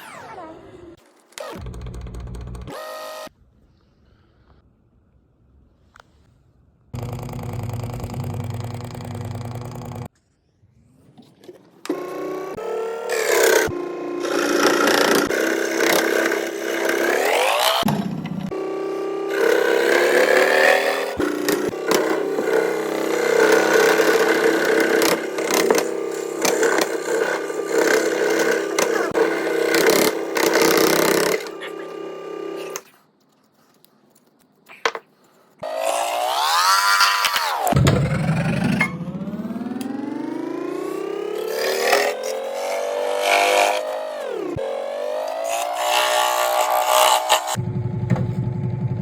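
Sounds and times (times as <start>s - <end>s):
scroll saw cutting wood: 0.0s - 3.3s, 11.8s - 32.9s, 35.6s - 47.6s
saw blade rasping through wood: 19.3s - 31.9s.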